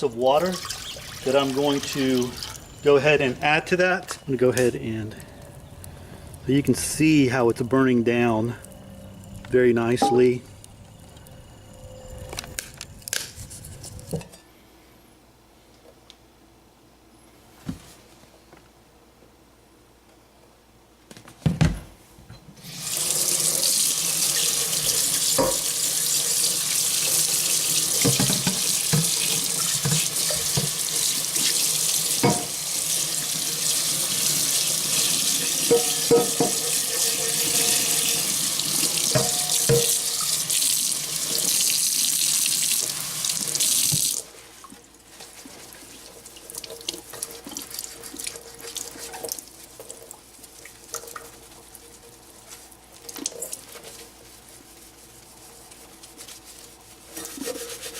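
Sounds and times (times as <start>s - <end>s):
water pouring into pot: 0.4s - 2.8s, 22.7s - 44.2s.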